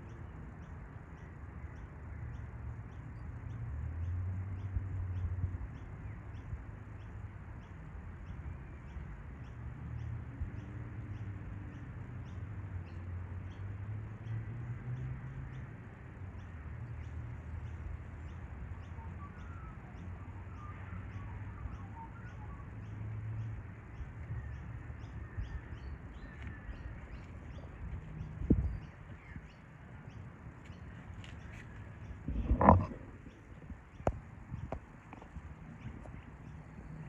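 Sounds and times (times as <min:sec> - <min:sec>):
faint bird chirps: 0:17.6 - 0:34.7.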